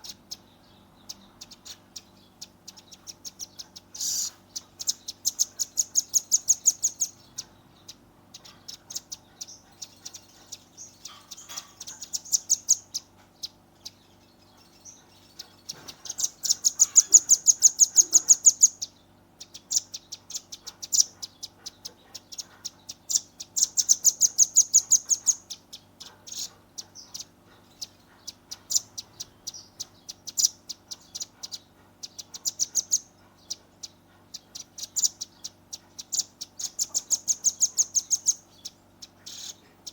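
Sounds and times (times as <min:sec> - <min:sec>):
nuthatch high rapid trills: 0:03.0 - 0:07.2, 0:14.7 - 0:18.8.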